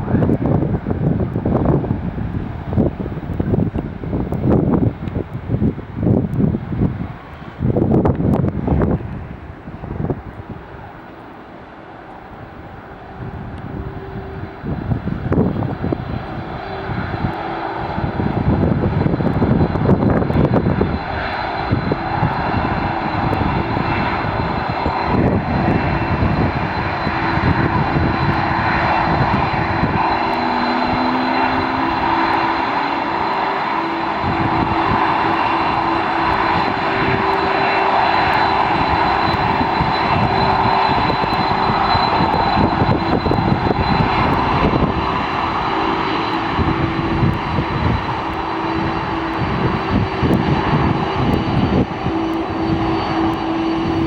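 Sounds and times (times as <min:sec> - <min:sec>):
wind buffeting microphone: 0:00.0 - 0:11.2, 0:12.1 - 0:54.0
jet engines whining and roaring: 0:00.0 - 0:54.0.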